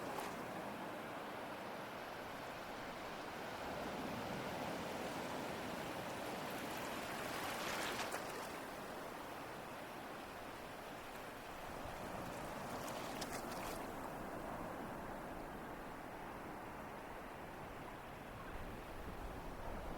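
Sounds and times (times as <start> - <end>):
ocean waves breaking: 3.0 - 9.1.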